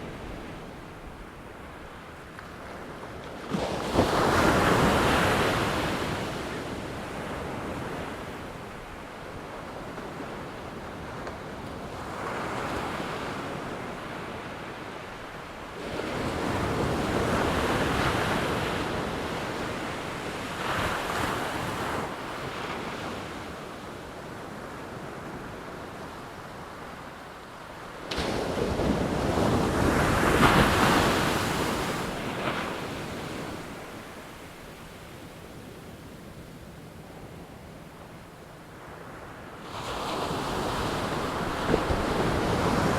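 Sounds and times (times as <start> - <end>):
ocean waves breaking: 27.8 - 34.9, 37.3 - 42.9.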